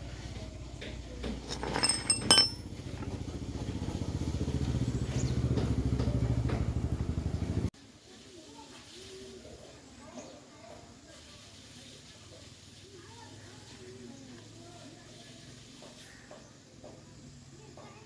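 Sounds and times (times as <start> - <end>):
small motorbike engine running: 0.0 - 7.7
sharp metallic clinks: 1.4 - 3.3.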